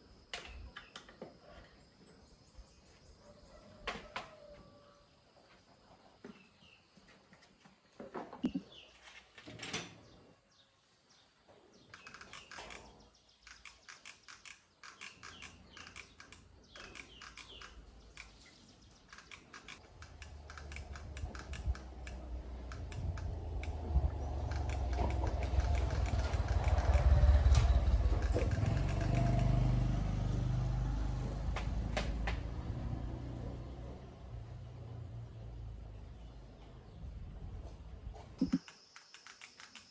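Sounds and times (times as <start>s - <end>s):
engine running: 19.2s - 35.8s.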